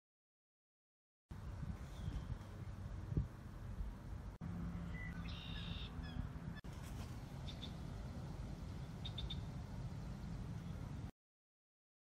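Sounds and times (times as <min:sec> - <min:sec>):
bird chirps: 0:04.8 - 0:06.7, 0:07.4 - 0:10.9
harsh bird call: 0:04.9 - 0:06.6.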